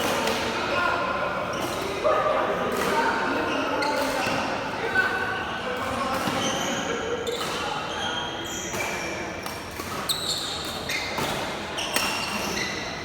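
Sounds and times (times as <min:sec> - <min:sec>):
sports shoes squeaking on court: 0:06.2 - 0:13.0.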